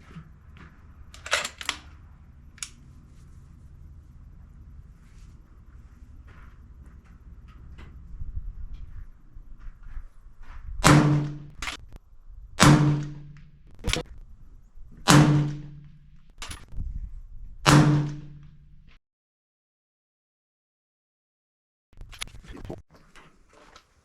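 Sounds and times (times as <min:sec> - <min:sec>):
suppressed rifle shots: 0:10.8 - 0:11.9, 0:12.6 - 0:14.0, 0:15.1 - 0:16.5, 0:17.6 - 0:18.6.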